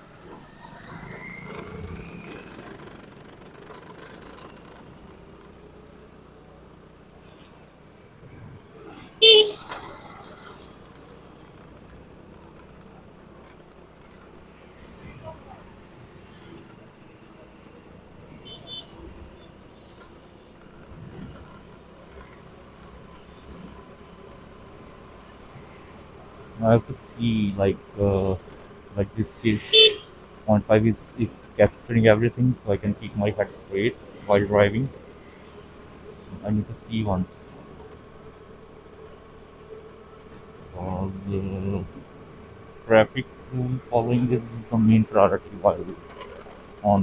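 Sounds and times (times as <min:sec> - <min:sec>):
passing traffic: 0:00.0 - 0:47.0
road noise: 0:00.0 - 0:47.0
wind: 0:00.0 - 0:47.0
motorcycle engine running: 0:01.5 - 0:07.3.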